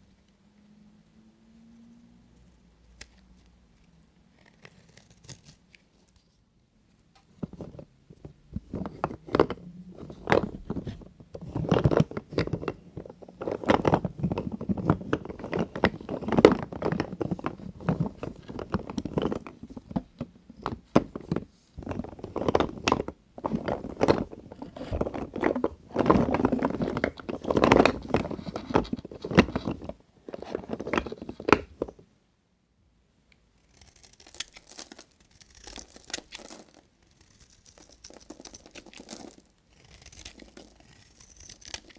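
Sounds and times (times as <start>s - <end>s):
knife cutting soap: 33.6s - 36.4s, 37.0s - 41.9s.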